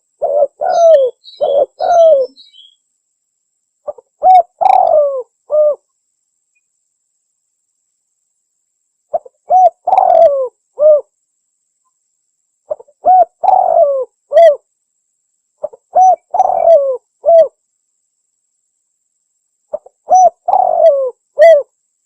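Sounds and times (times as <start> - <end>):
dove cooing: 0.0 - 2.7, 3.9 - 5.8, 9.1 - 11.1, 12.7 - 14.6, 15.6 - 17.6, 19.7 - 21.7.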